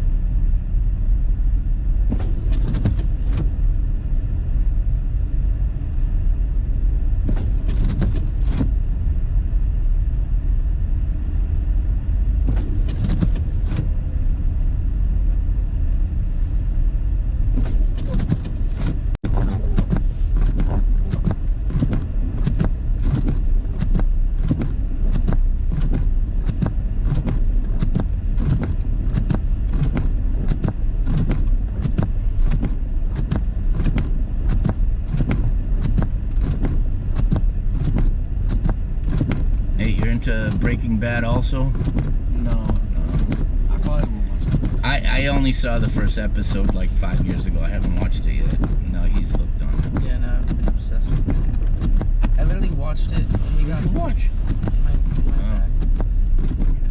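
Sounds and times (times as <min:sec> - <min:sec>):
car road and engine rumble: 0:00.0 - 0:56.9.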